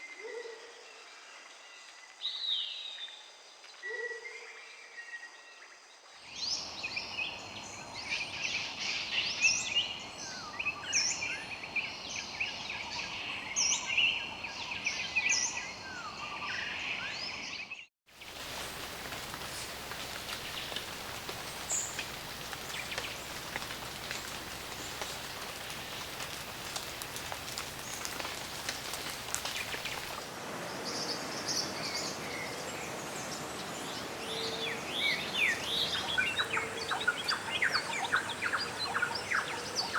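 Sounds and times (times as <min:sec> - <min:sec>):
steady background hiss: 0:18.2 - 0:39.9.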